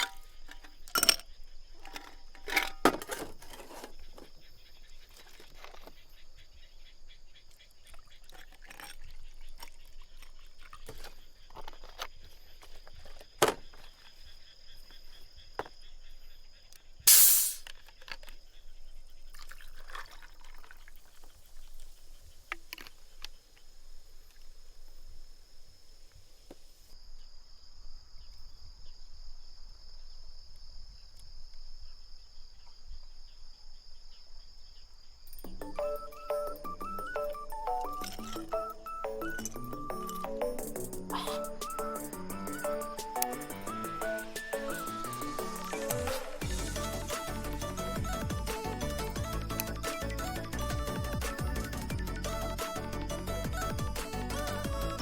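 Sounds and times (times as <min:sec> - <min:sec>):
insects trilling: 0:00.0 - 0:55.0
loud short hiss: 0:17.1 - 0:17.7.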